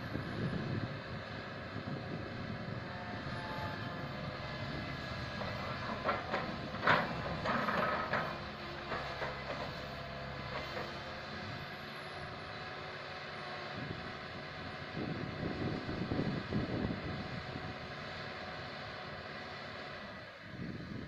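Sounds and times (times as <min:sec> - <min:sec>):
excavator diesel engine running: 0:00.0 - 0:21.0
metallic clanks and scraping: 0:05.4 - 0:11.0.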